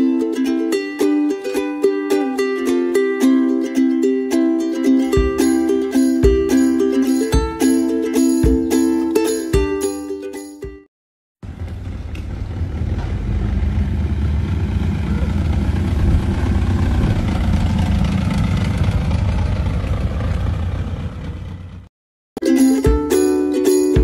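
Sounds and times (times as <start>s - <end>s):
car engine running: 11.4s - 21.9s.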